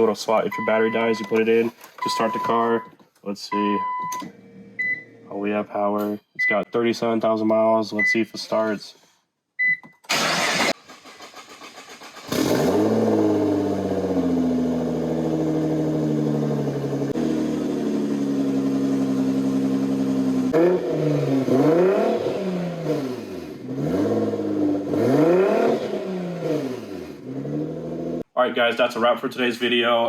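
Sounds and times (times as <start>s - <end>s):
car engine cranking: 10.1s - 28.2s
engine revving: 10.1s - 28.2s
car engine idling: 12.9s - 21.0s.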